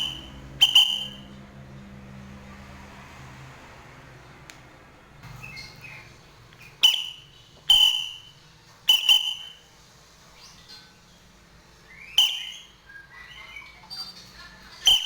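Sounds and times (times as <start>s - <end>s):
bird calling: 0.0s - 1.3s, 5.3s - 9.7s, 11.8s - 14.2s.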